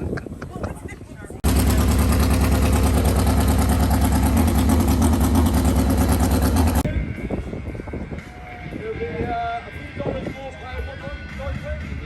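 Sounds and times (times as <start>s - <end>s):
motorcycle engine running: 1.4s - 6.9s.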